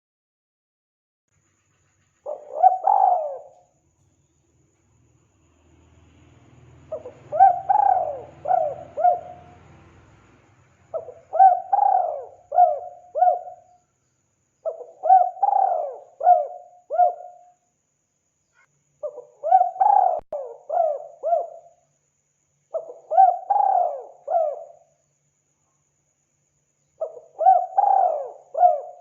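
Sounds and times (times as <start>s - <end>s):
dove cooing: 2.2s - 3.6s, 6.9s - 9.7s, 10.9s - 13.8s, 14.6s - 17.4s, 19.0s - 21.8s, 22.7s - 24.8s, 27.0s - 29.0s.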